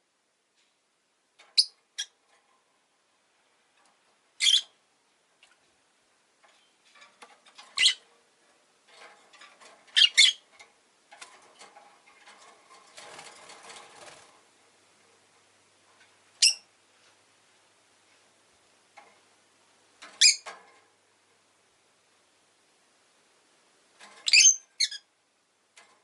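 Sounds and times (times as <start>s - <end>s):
quiet clicking and rustling: 0.4s - 26.0s
lovebird chirps: 4.4s - 4.7s, 7.8s - 8.0s, 10.0s - 10.4s, 16.4s - 16.7s, 20.2s - 20.4s, 24.2s - 25.0s.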